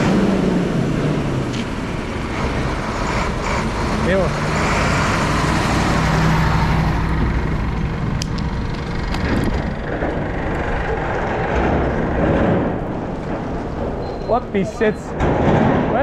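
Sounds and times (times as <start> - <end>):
vehicle engine running: 0.0 - 15.1
road noise: 0.0 - 16.0
wind noise: 6.2 - 16.0.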